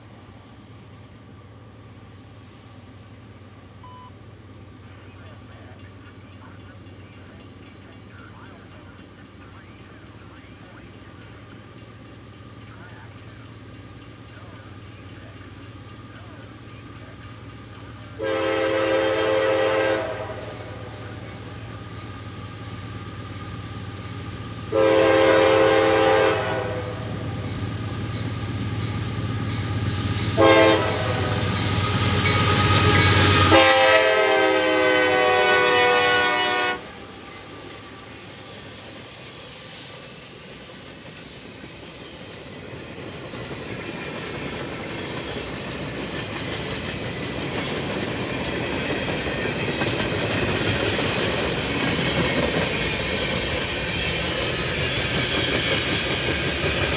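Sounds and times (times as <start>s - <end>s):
locomotive engine rumble: 0.0s - 56.9s
locomotive air horn blasts: 18.2s - 21.1s, 24.7s - 27.2s, 30.3s - 37.1s.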